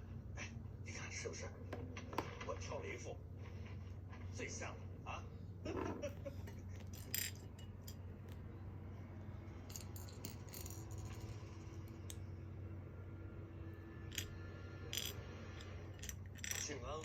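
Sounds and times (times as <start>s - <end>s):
steady low hum: 0.0s - 17.0s
plastic pieces clicking and rattling: 14.9s - 15.2s, 15.9s - 16.8s.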